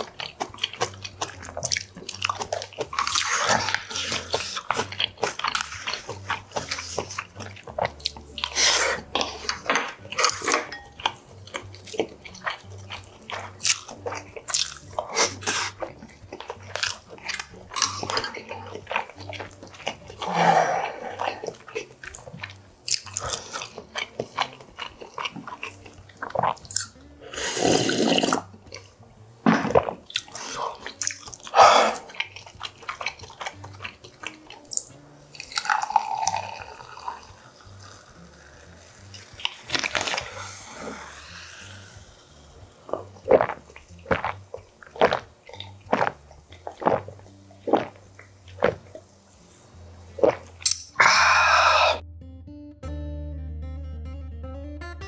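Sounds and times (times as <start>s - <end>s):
chewing and biting food: 0.0s - 28.9s, 29.5s - 49.1s, 50.0s - 52.0s
sipping from a glass: 35.4s - 48.0s, 50.2s - 52.0s.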